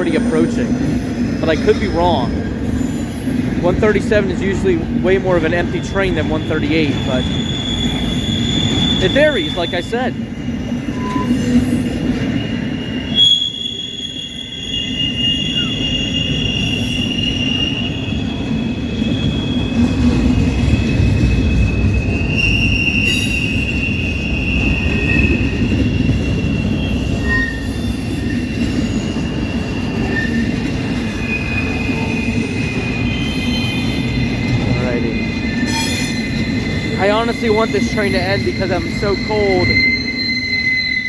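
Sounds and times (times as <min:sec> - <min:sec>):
high wheel squeals: 0:00.0 - 0:41.0
train wheels rumbling on rail: 0:00.0 - 0:41.0.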